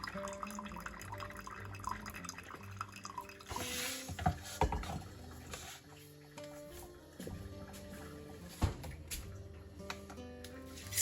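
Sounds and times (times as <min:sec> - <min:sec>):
water dripping: 0:00.0 - 0:03.5.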